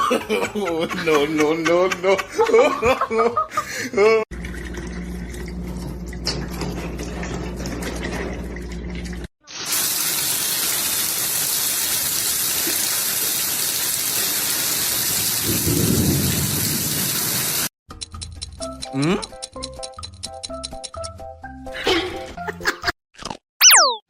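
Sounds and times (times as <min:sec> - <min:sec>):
heavy rain hissing: 0:13.4 - 0:17.7.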